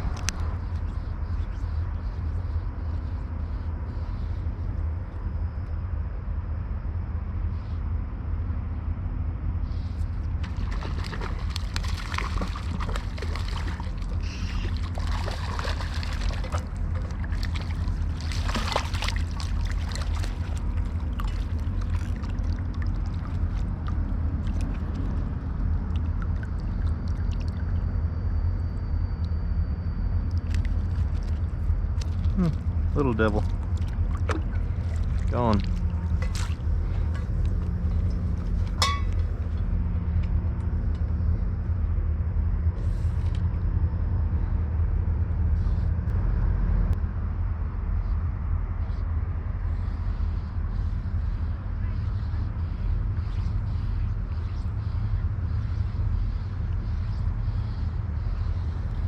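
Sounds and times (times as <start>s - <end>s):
river water rushing: 10.4s - 21.4s
water splashing and trickling: 10.4s - 27.8s, 30.4s - 39.7s.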